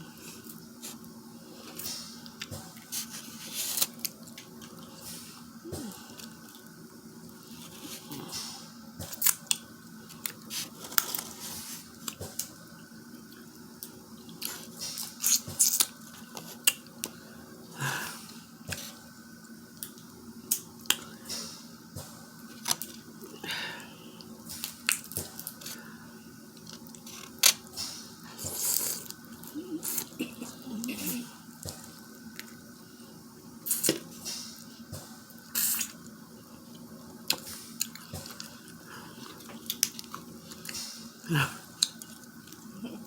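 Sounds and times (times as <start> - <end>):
wet squishing and chewing: 5.7 - 12.6, 34.9 - 40.9, 41.6 - 42.7.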